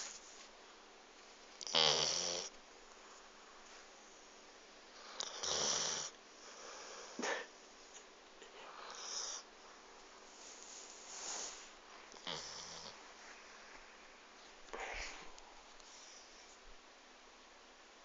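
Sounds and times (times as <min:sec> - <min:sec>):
dog snoring: 0:01.6 - 0:02.5, 0:05.0 - 0:07.2, 0:08.7 - 0:09.5, 0:12.1 - 0:13.0.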